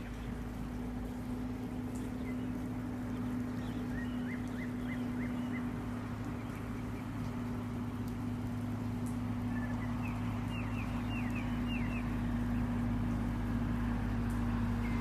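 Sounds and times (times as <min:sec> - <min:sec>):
birds chirping: 0:00.0 - 0:13.3, 0:14.2 - 0:15.0
low mechanical hum: 0:00.0 - 0:15.0.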